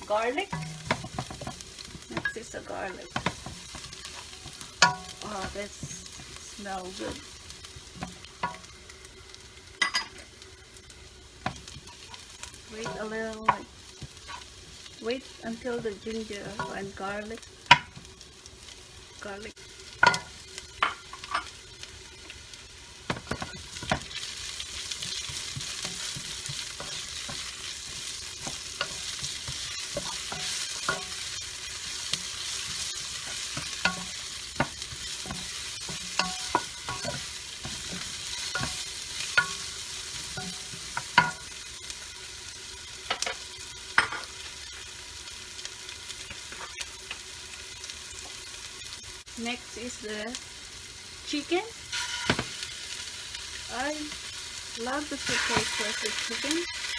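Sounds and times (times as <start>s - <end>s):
ginger and garlic sizzling in oil: 0.0s - 56.9s.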